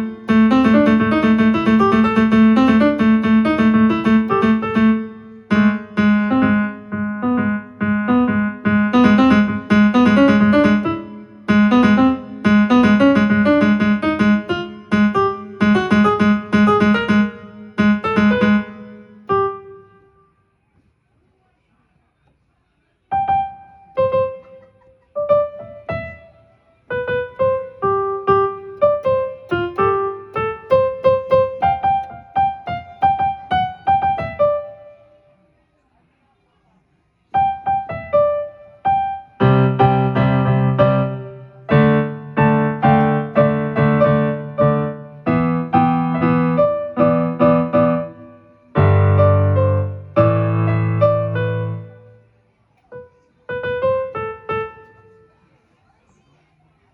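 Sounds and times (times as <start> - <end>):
low keyboard chords: 0.0 - 20.0, 25.2 - 35.0, 37.6 - 52.2
keyboard piano melody: 0.0 - 20.3, 23.1 - 35.2, 37.4 - 55.2.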